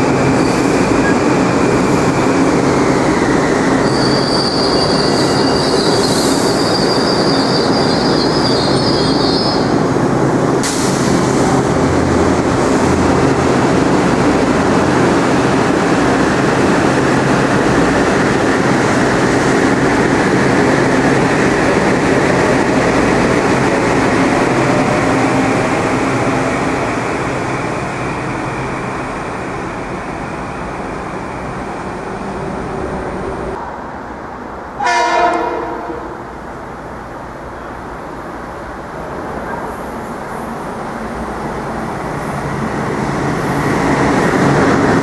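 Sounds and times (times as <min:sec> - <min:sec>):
train wheels rumbling: 0:34.5 - 0:45.0
train horn blast: 0:34.8 - 0:36.2.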